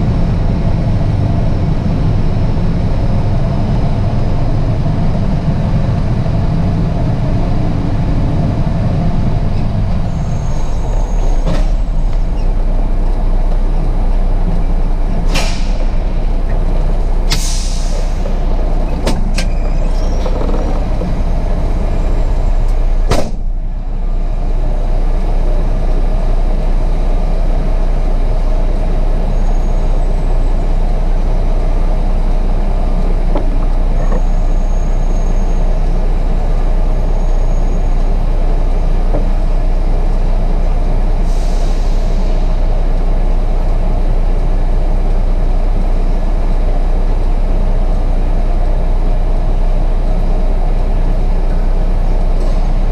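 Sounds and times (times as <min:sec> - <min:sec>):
diesel truck engine running: 0:00.0 - 0:52.9
air hiss: 0:17.2 - 0:18.8, 0:41.2 - 0:42.6.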